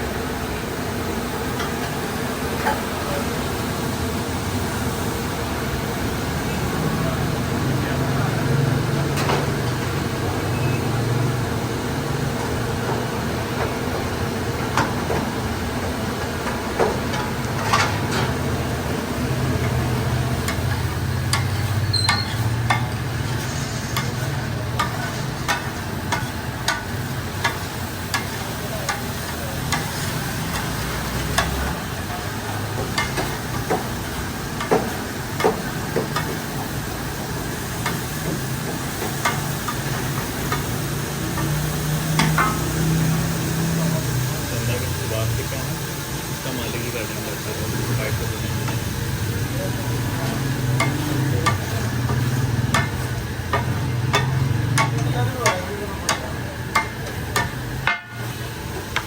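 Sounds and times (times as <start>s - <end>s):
food sizzling in a pan: 0.0s - 59.0s
metal utensil clinking on pan: 50.8s - 58.2s.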